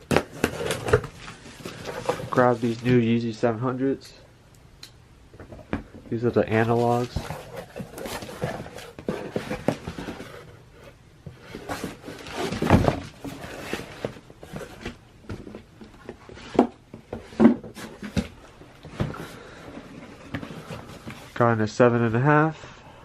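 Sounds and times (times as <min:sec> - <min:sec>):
cardboard and paper rustling: 0:00.0 - 0:03.1, 0:06.2 - 0:21.4.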